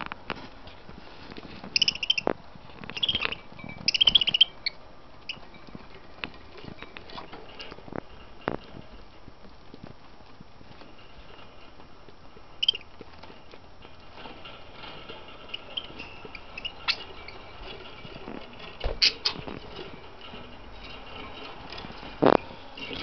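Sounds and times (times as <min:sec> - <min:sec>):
budgies chirping softly: 0:01.7 - 0:05.7, 0:12.6 - 0:12.9, 0:15.4 - 0:17.6
beaks pecking and clicking: 0:01.7 - 0:07.2, 0:12.6 - 0:13.0, 0:15.4 - 0:19.4.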